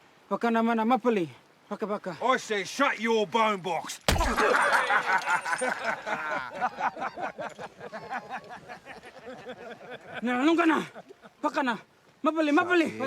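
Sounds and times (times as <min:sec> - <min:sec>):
men laughing and jeering: 0:04.2 - 0:11.4.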